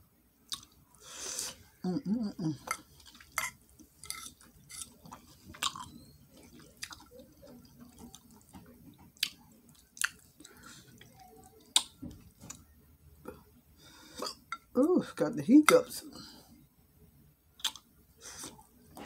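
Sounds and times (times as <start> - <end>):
person chewing food: 0.5 - 1.7, 2.6 - 14.7, 17.6 - 19.0
wet mouth clicks and lip smacks: 11.8 - 12.0, 17.6 - 18.6.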